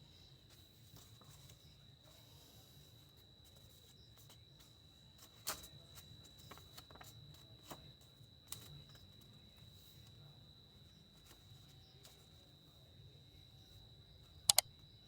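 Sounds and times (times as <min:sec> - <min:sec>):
soft clicks: 0:14.5 - 0:14.7.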